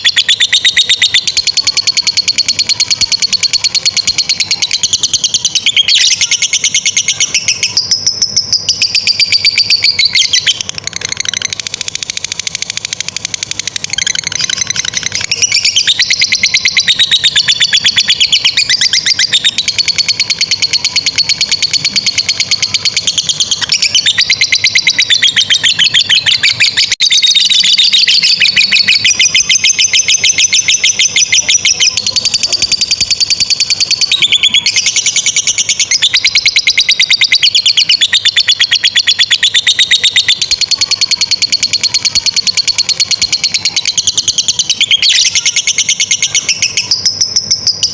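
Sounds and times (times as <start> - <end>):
bird chattering trill: 0.0 - 47.9.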